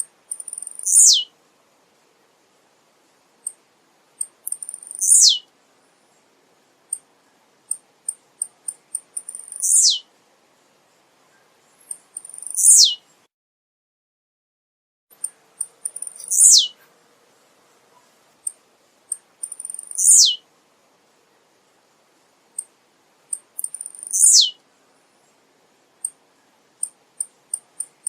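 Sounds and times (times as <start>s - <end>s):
bird high chips: 0.3s - 1.3s, 4.5s - 5.4s, 9.0s - 10.0s, 11.9s - 13.0s, 15.2s - 16.8s, 19.4s - 20.4s, 23.6s - 24.5s
bird song sliding downward: 0.5s - 1.3s, 4.6s - 5.4s, 9.3s - 10.0s, 12.2s - 13.0s, 15.9s - 16.8s, 19.6s - 20.4s, 23.6s - 24.6s.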